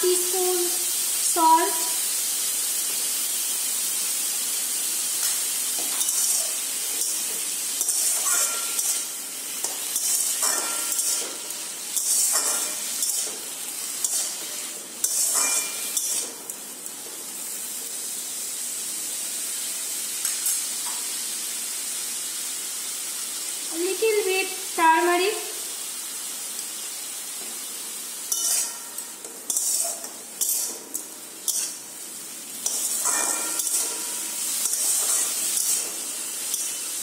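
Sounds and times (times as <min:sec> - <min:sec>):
vegetables sizzling in a wok: 0:00.0 - 0:37.0
spatula scraping a steel pan: 0:06.0 - 0:07.1, 0:07.8 - 0:09.1, 0:28.3 - 0:30.8, 0:31.5 - 0:31.8, 0:32.6 - 0:35.9.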